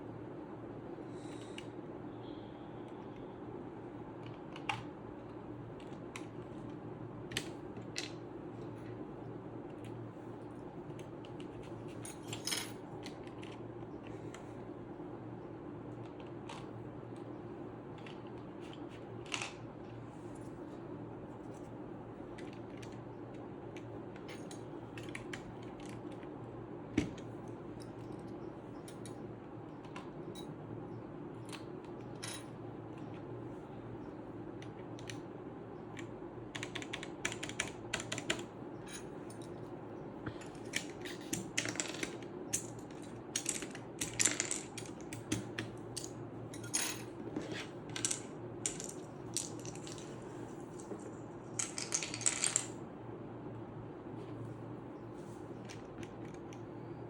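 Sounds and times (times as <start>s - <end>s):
steady low hum: 0.0s - 57.0s
keycaps clicking onto keyboard: 36.0s - 38.5s.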